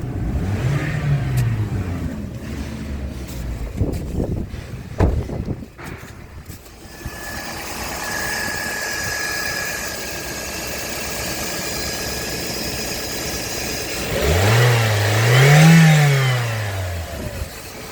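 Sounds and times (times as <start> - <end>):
car engine idling and revving: 0.0 - 17.9
thin steady whine: 6.7 - 14.0.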